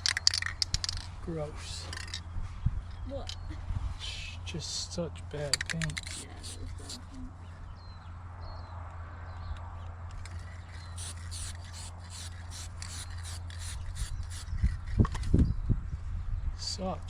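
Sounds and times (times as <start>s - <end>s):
steady low hum: 0.0s - 8.6s
rhythmic scraping on painted metal: 5.6s - 7.2s, 10.2s - 15.4s.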